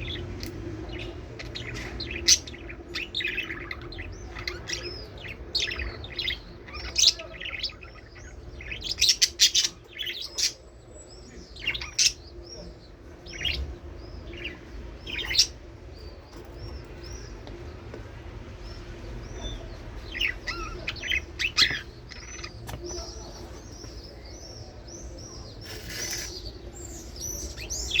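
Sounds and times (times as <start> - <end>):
budgerigars chirping: 0.0 - 28.0.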